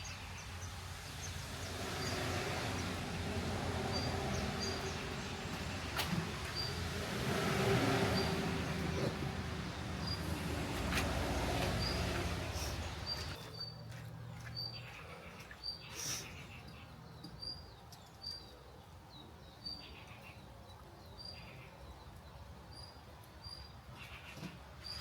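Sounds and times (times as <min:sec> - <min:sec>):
bird chirping: 0:11.5 - 0:25.0.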